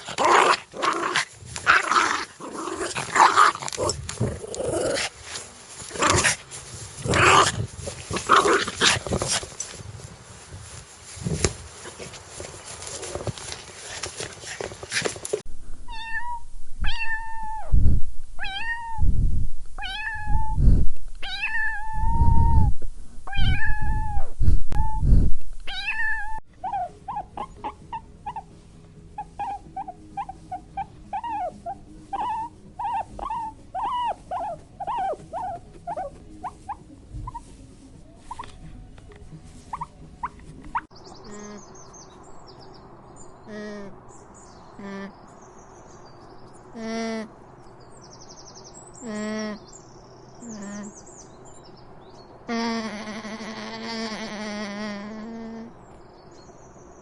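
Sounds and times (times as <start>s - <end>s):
cat meowing: 15.9s - 17.7s, 18.4s - 19.1s, 19.8s - 20.6s, 21.2s - 22.7s, 23.3s - 25.0s, 25.7s - 27.5s.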